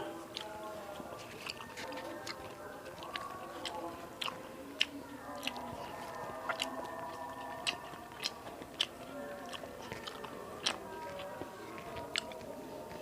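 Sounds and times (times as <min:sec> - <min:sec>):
chewing and biting food: 0:00.0 - 0:13.0
wet mouth clicks: 0:03.0 - 0:12.5.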